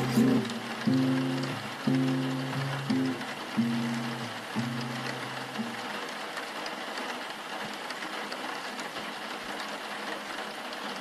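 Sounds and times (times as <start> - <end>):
low guitar note: 0.0 - 5.8
steady rain hiss: 0.0 - 11.0.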